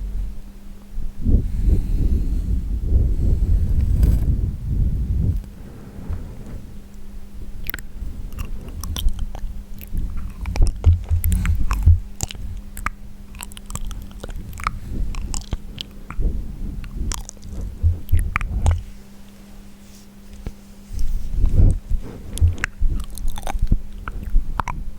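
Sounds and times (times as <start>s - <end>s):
faint steady hum: 0.0s - 24.9s
wet mouth clicks and smacks: 7.6s - 16.2s, 16.8s - 18.9s, 21.7s - 24.8s
low thumps: 8.8s - 12.7s, 16.1s - 19.0s, 21.3s - 23.8s.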